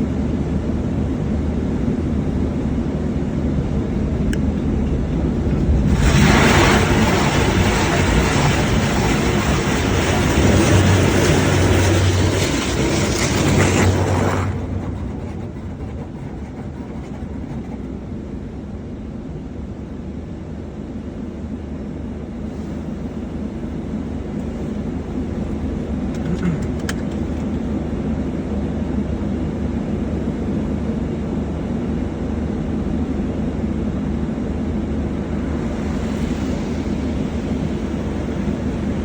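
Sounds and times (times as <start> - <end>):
vehicle rumbling: 1.7 - 19.5, 24.5 - 27.8.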